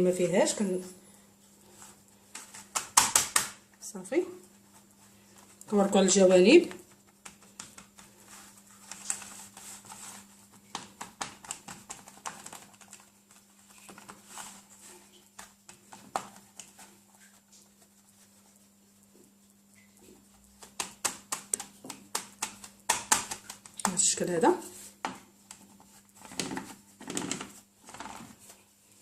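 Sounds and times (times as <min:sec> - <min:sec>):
faint steady hum: 0:00.0 - 0:29.0
fingers tapping dough in a metal tin: 0:20.6 - 0:24.2.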